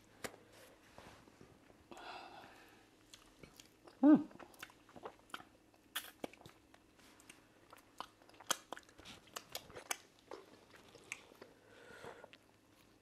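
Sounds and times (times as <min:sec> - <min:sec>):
chewing: 0:03.0 - 0:11.6
lip smacks and mouth clicks: 0:03.1 - 0:11.5.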